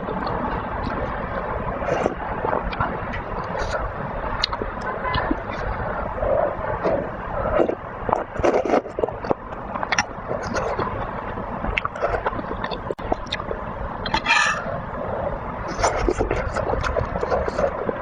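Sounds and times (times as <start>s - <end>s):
slurping: 1.8s - 11.0s, 15.7s - 18.0s
wet chewing and smacking: 1.8s - 14.4s, 15.7s - 18.0s.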